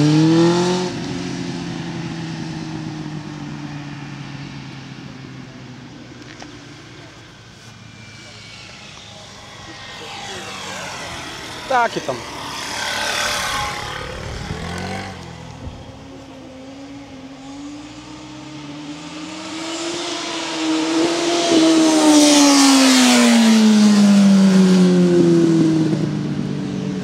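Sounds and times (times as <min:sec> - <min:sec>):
racing car passing by: 0:05.4 - 0:26.3.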